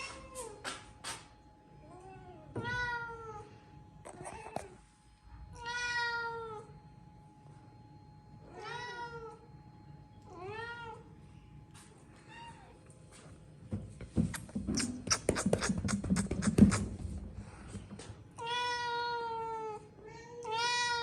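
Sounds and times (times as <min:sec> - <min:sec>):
cat meowing: 0:18.4 - 0:21.0.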